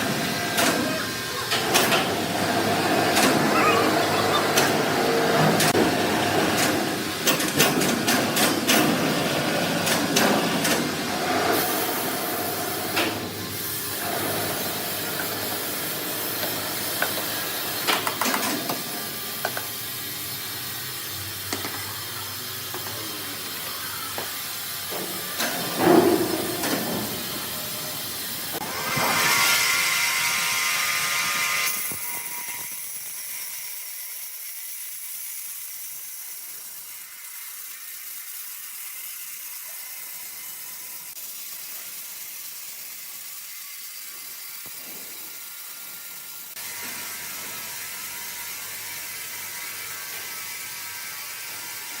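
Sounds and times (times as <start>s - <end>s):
sawmill machinery running: 0.0s - 32.6s.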